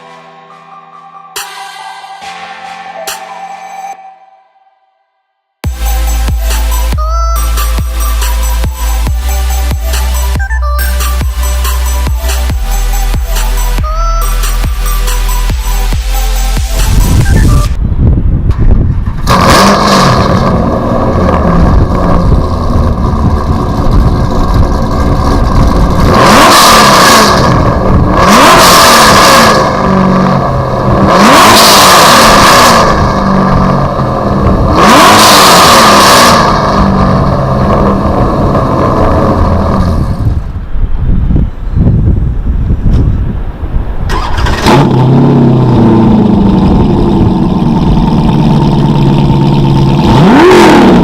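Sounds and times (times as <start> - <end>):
car engine revving hard: 19.2 - 40.4, 44.1 - 51.0.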